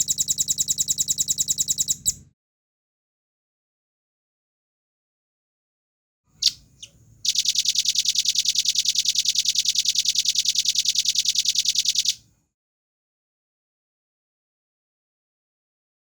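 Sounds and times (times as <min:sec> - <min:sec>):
bird calling with fast trill: 0:00.0 - 0:02.2, 0:06.4 - 0:12.2.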